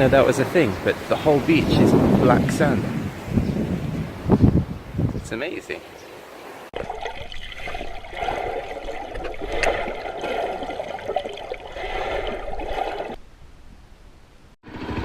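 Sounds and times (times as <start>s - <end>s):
surf washing over sand: 0.0s - 4.4s.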